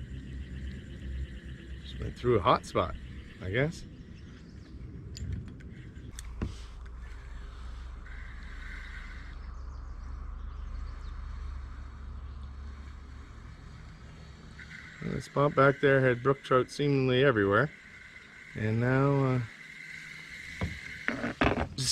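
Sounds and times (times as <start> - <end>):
wind rumble on microphone: 0.0 - 8.0.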